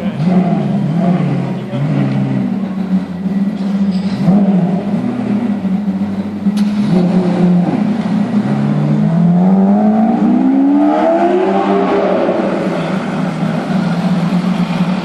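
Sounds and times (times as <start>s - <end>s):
engine idling hum: 0.0s - 10.3s, 11.6s - 15.0s
car engine accelerating: 0.0s - 15.0s.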